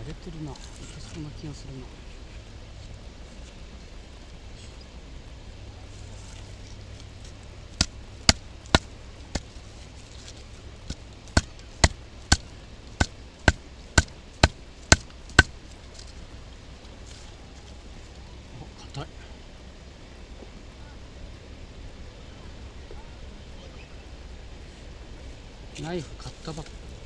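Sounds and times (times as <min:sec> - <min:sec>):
wood knocking on knife spine: 0:07.8 - 0:09.6, 0:10.9 - 0:16.1.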